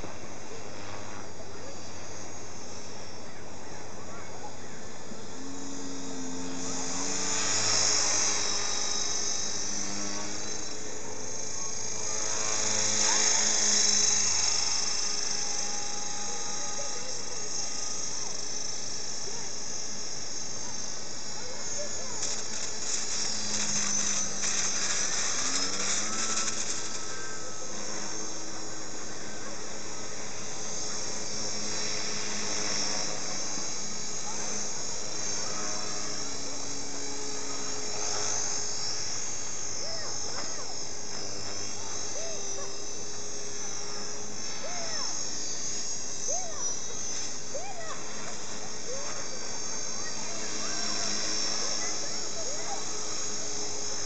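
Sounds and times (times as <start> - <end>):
model plane motor whining: 0.0 - 54.0.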